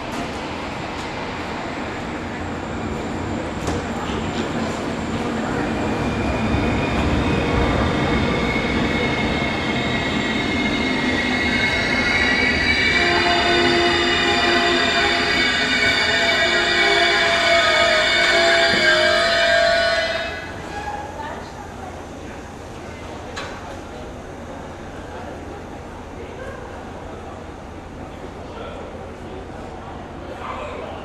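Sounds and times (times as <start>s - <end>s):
train rumbling: 0.0s - 30.0s
train wheel squeal: 5.2s - 21.2s.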